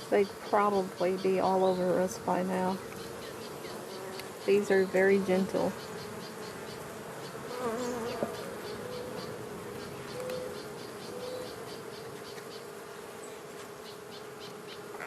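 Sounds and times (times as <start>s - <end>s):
honey bees buzzing: 0.0s - 15.0s
bee flying past microphone: 5.8s - 9.5s.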